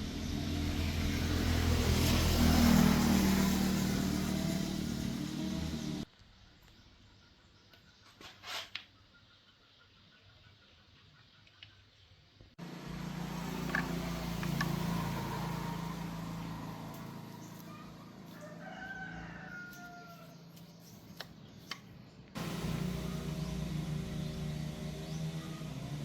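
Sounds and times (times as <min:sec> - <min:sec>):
rooster crowing: 0:15.0 - 0:20.4.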